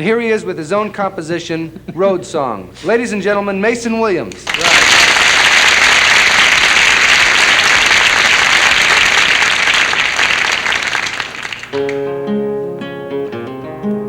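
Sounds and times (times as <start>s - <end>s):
audience applauding: 4.4s - 12.1s
acoustic guitar: 11.6s - 14.0s.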